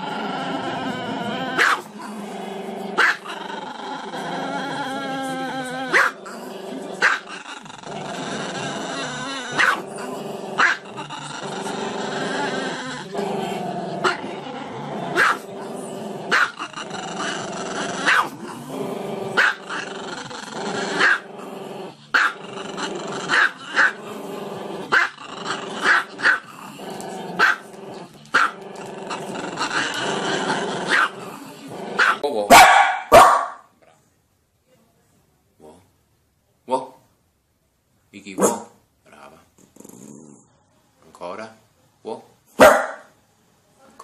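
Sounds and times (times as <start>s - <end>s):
small dog barking: 1.6s - 1.9s, 3.0s - 3.3s, 5.9s - 6.2s, 9.6s - 9.8s, 15.2s - 15.4s, 16.3s - 16.6s, 18.0s - 18.3s, 27.4s - 27.6s, 32.0s - 33.7s, 38.4s - 38.8s, 42.6s - 43.1s.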